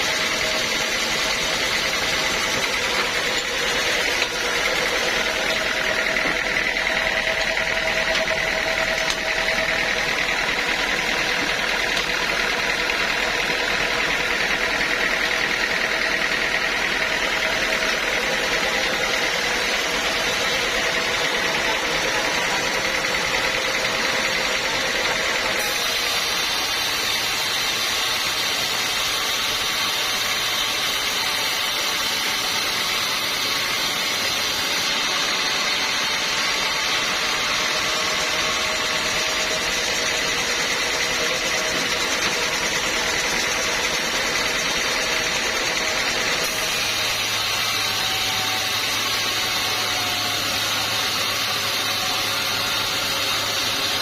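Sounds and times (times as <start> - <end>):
sawmill blade cutting wood: 0.0 - 54.0.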